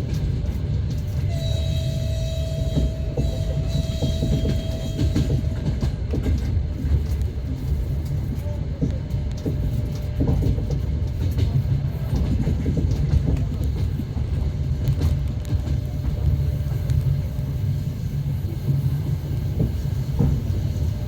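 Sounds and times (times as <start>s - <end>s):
train rumbling: 0.0s - 21.0s
train wheels knocking: 0.0s - 21.0s.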